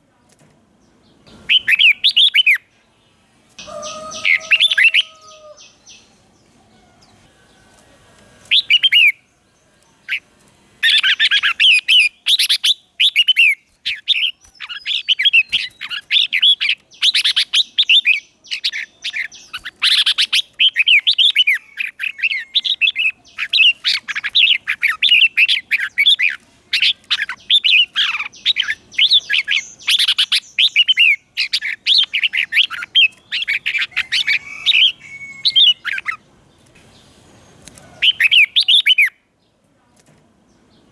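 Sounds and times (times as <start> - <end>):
bulbul singing warbling whistles: 1.3 - 2.7, 8.5 - 9.2, 10.8 - 36.2.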